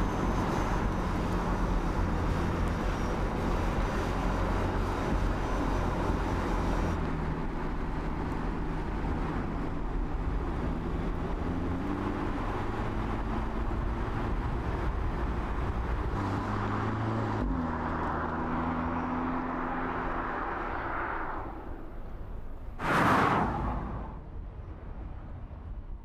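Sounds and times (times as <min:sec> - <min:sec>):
road and wind noise: 0:00.0 - 0:26.0.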